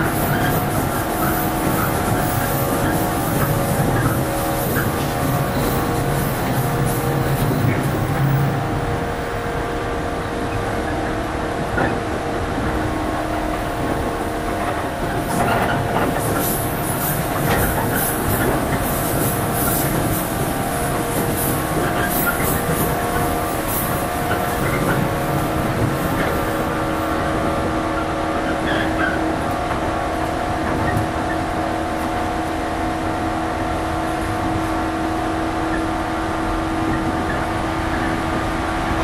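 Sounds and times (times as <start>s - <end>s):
train motor hum: 0.0s - 39.0s
train wheels rumbling on rail: 0.0s - 39.0s.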